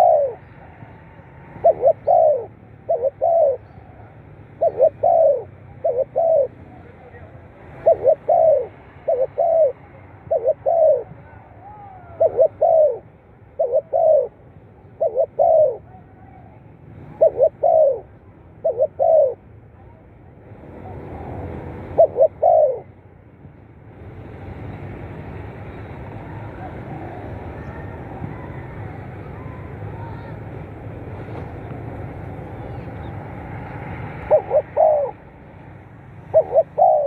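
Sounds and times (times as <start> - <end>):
dove cooing: 0.0 - 19.4, 21.2 - 23.0, 32.6 - 35.3, 36.2 - 37.0
steady background noise: 0.0 - 37.0.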